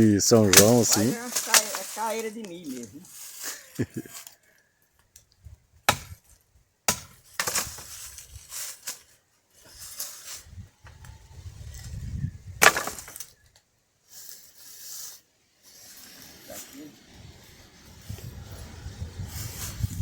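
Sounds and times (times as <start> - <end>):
branches rustling and scraping: 0.0 - 20.0
dry wood cracking: 0.3 - 9.1.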